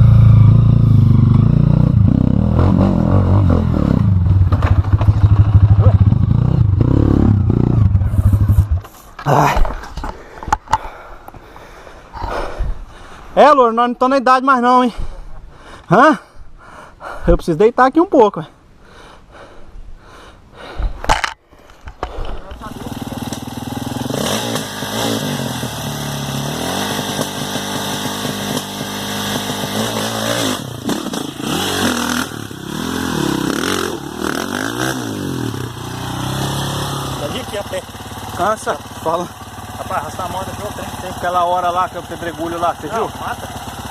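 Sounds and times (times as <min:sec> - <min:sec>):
dirt bike engine revving: 0:00.0 - 0:09.0, 0:22.6 - 0:43.9
motorcycle engine thudding: 0:04.2 - 0:10.9, 0:22.0 - 0:24.8.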